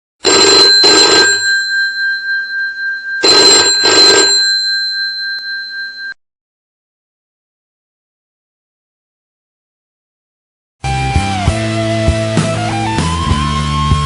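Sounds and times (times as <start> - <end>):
telephone bell ringing: 0.2 - 6.2.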